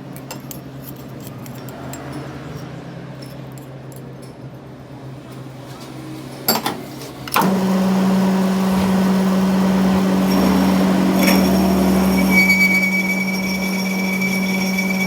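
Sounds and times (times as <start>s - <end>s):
electric motor humming: 7.4s - 15.0s.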